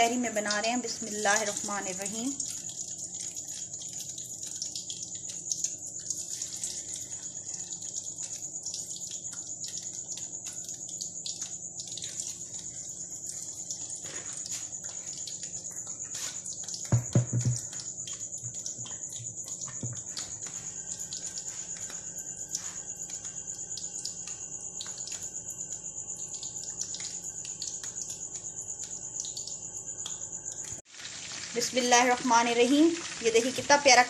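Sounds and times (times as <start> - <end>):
chicken frying in hot oil: 0.0 - 34.0.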